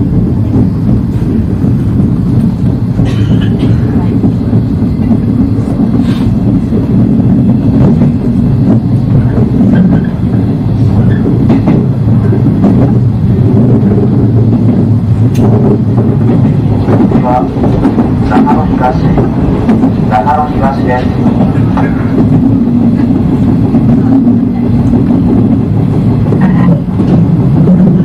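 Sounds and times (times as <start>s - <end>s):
train wheels rumbling: 0.0s - 28.0s.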